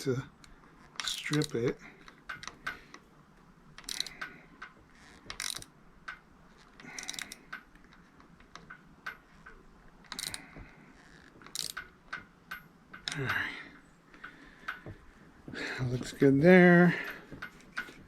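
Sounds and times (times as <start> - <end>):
hand ratchet clicking: 3.8 - 6.2, 6.8 - 10.4, 11.0 - 13.6.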